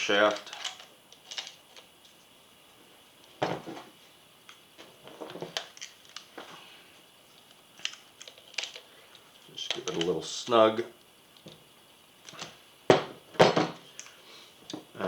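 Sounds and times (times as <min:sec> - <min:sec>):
metal parts clicking and tapping: 0:00.3 - 0:01.8, 0:09.6 - 0:10.2.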